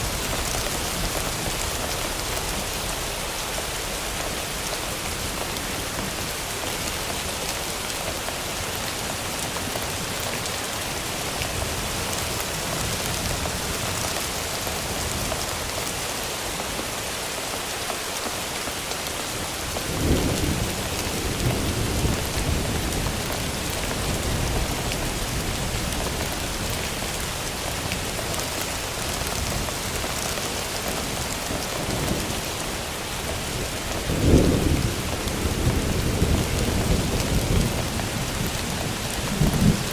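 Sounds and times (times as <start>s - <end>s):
rain hiss: 0.0s - 39.9s
thunder rumbling: 31.8s - 39.9s.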